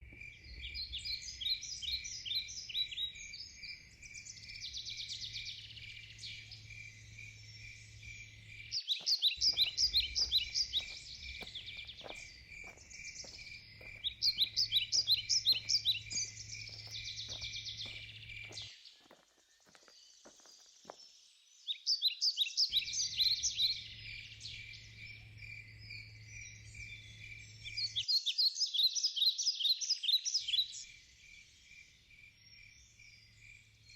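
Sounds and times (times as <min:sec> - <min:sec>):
bird chirping: 0:00.0 - 0:33.9
insect chirping: 0:01.5 - 0:21.2
low steady hum: 0:02.5 - 0:18.7.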